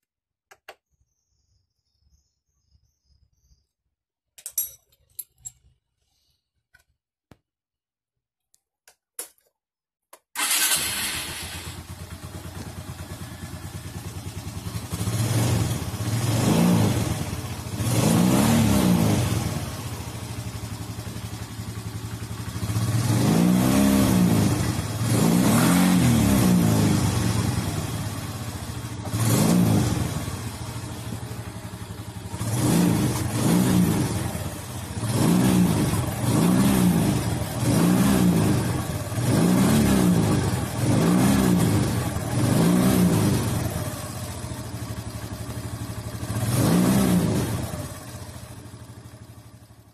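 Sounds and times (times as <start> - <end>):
scooter engine starting and revving: 10.4 - 49.9.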